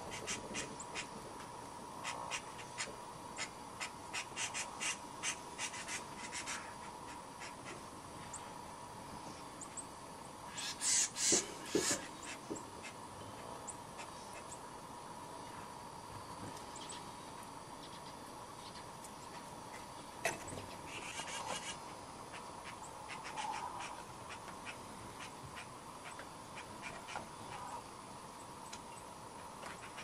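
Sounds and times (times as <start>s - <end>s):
harsh raspy bird calls: 0.0s - 1.2s, 2.0s - 7.8s, 10.5s - 13.0s, 19.7s - 27.8s
birds chirping: 10.5s - 14.8s.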